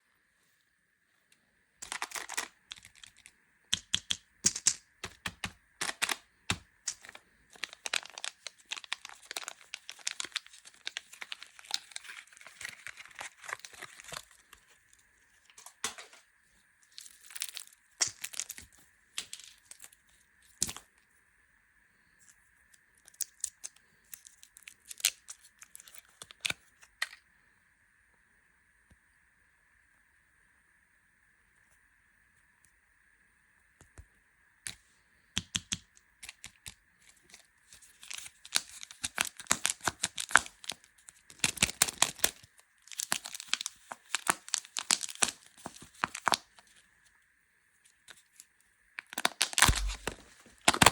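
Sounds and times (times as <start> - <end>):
faint steady high hum: 0.0 - 50.9
plastic wrappers crinkling and tearing: 1.8 - 3.3, 4.6 - 16.2, 16.9 - 20.0, 23.0 - 26.8, 36.2 - 46.8, 47.9 - 50.9.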